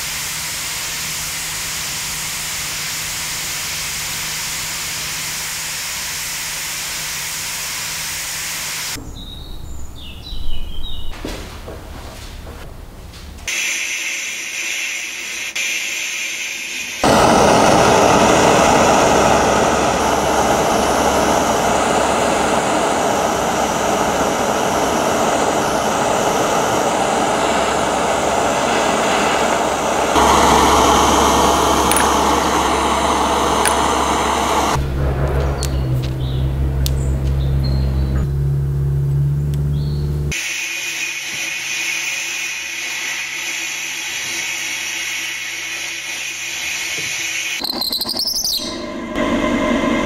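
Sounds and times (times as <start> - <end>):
power tool whirring: 16.3 - 34.8.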